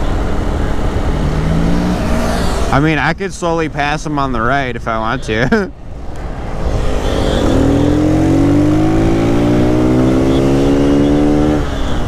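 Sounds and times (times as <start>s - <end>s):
low wind rush: 0.0s - 11.0s
motorcycle engine accelerating: 1.0s - 2.8s, 6.2s - 11.8s.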